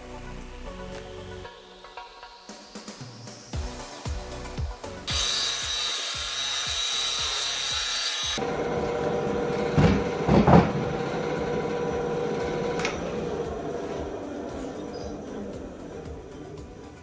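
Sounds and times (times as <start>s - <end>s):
band saw cutting wood: 5.1s - 17.0s
band saw humming: 5.1s - 17.0s
dull knocks: 8.5s - 13.4s.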